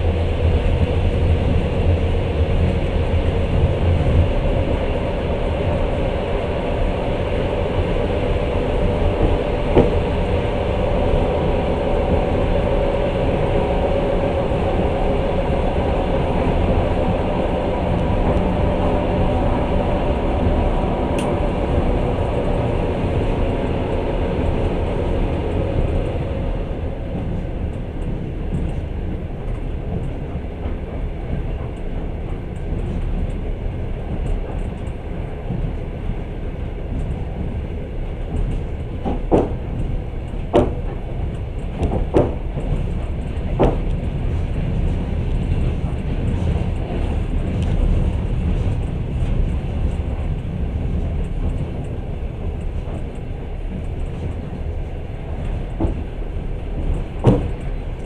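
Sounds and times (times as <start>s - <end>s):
train rumbling on track: 0.0s - 58.0s
sharp clacks of wheels: 27.2s - 58.0s.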